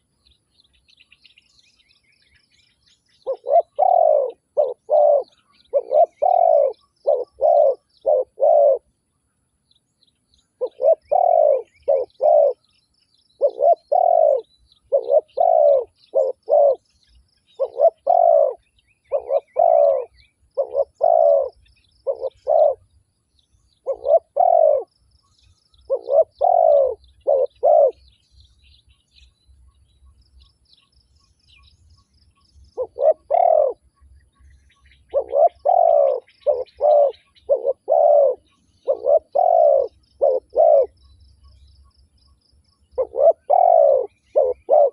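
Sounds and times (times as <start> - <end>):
small birds chirping: 0.0 - 44.9
dove cooing: 3.2 - 8.9, 10.6 - 12.6, 13.4 - 16.9, 17.5 - 22.9, 23.8 - 24.9, 25.9 - 28.1, 32.7 - 33.8, 35.0 - 41.0, 43.0 - 44.9.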